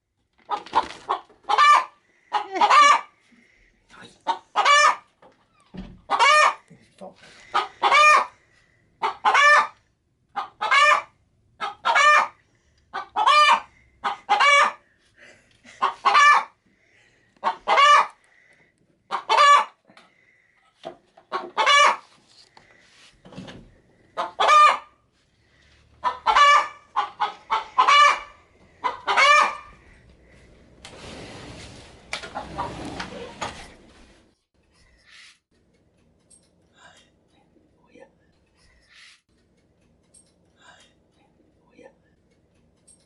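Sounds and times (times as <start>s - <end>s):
hen cackling: 0.5s - 3.5s, 4.3s - 5.2s, 6.0s - 6.7s, 7.3s - 14.9s, 15.7s - 16.6s, 17.4s - 18.2s, 19.1s - 19.8s, 21.2s - 22.1s, 24.1s - 25.0s, 25.9s - 30.0s
soft hen clucks: 1.1s - 3.2s, 4.2s - 5.2s, 6.0s - 6.8s, 7.4s - 8.4s, 9.0s - 14.8s, 15.8s - 16.6s, 17.4s - 18.2s, 19.1s - 19.8s, 21.2s - 22.1s, 24.1s - 25.0s, 26.0s - 29.9s.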